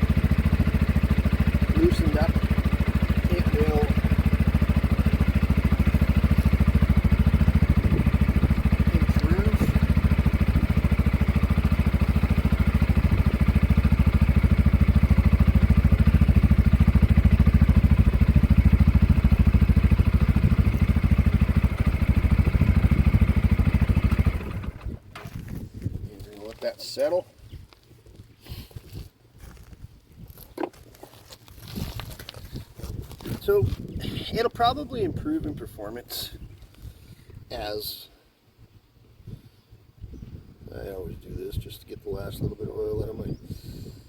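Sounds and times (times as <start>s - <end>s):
quad engine idling: 0.0s - 25.0s.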